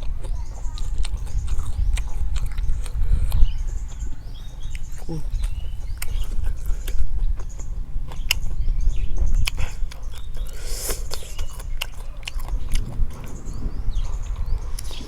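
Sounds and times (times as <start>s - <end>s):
person chewing crunchy food: 0.0s - 15.0s
low rumble: 0.5s - 6.8s, 12.4s - 15.0s.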